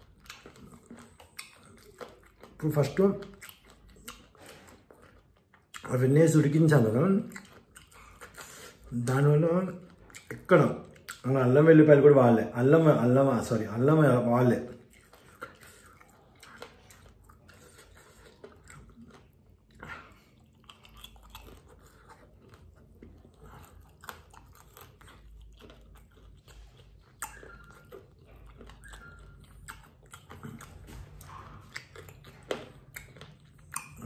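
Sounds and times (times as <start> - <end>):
person chewing crispy food: 0.0 - 11.6, 14.3 - 34.0.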